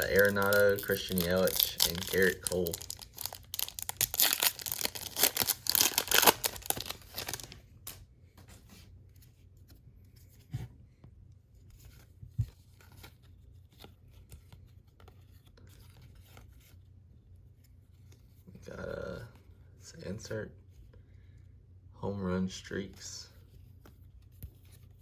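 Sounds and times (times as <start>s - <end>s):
wrapper tearing and crinkling: 0.0s - 8.0s.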